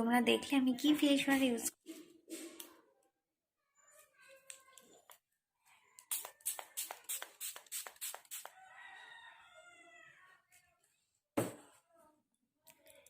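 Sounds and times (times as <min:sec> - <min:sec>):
rooster crowing: 0:08.5 - 0:10.3.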